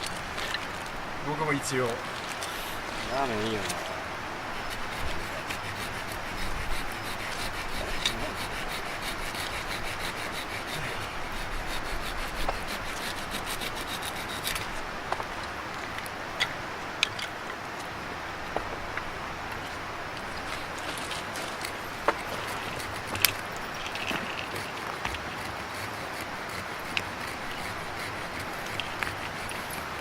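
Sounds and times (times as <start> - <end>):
knife scraping wood: 1.6 - 15.3, 20.2 - 30.0.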